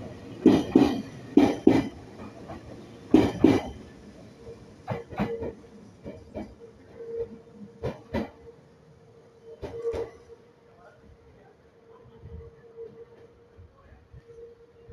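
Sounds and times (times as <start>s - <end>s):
train wheels clacking over rail joints: 0.3s - 4.0s, 4.8s - 8.4s, 9.5s - 10.3s.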